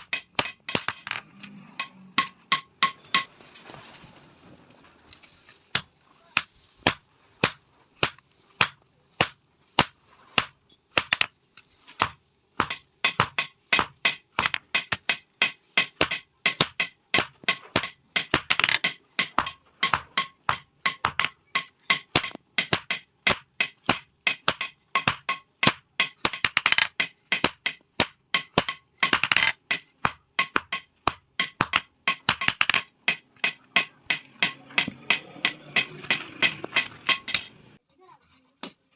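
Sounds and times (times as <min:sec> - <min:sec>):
hammer striking metal: 0:00.0 - 0:03.3, 0:12.0 - 0:37.6.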